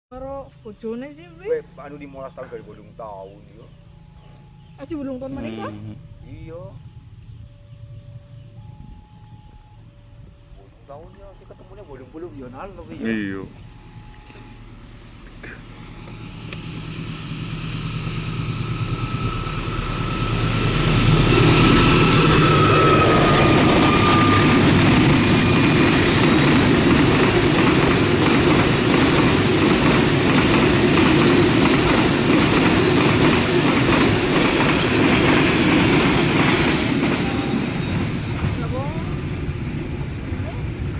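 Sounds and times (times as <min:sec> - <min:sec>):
diesel locomotive hum: 0:00.1 - 0:40.9
wagon wheels rumbling: 0:17.4 - 0:40.9
high squeal: 0:18.4 - 0:26.6
wheels clacking over rail joints: 0:23.8 - 0:39.4.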